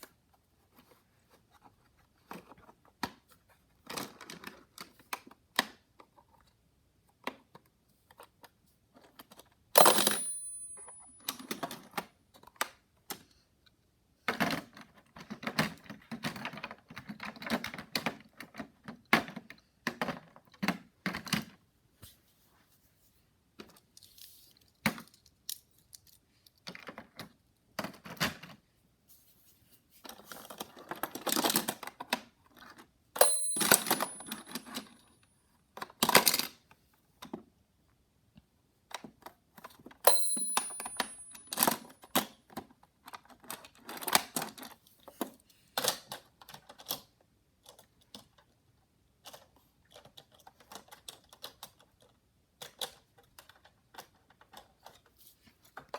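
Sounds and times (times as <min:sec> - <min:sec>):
sharp metallic clink: 0:09.8 - 0:11.5, 0:33.2 - 0:35.0, 0:40.1 - 0:41.8
toy cars clicking and clattering: 0:23.6 - 0:28.4, 0:30.1 - 0:35.0, 0:39.0 - 0:55.9.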